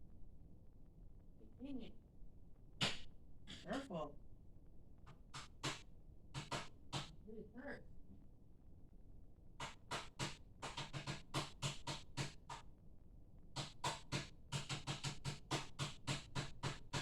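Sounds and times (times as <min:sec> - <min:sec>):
rhythmic knocks on hard surface: 0:05.1 - 0:07.1, 0:09.6 - 0:12.6, 0:13.6 - 0:17.0.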